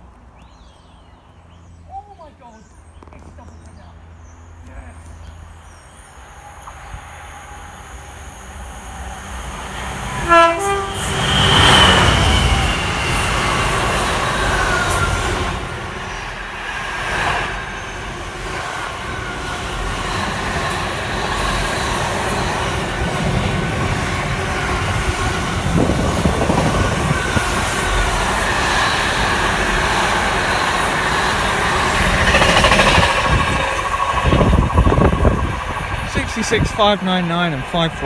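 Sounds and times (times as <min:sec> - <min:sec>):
wheels squealing on rails: 0:06.0 - 0:36.5
freight wagons rumbling: 0:13.8 - 0:28.4.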